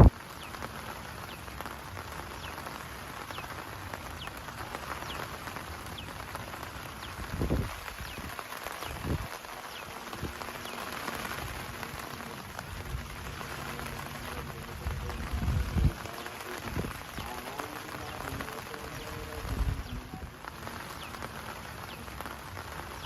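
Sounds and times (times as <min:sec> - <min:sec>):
heavy rain falling: 0:00.0 - 0:23.0
rain drop ticks: 0:00.0 - 0:23.0.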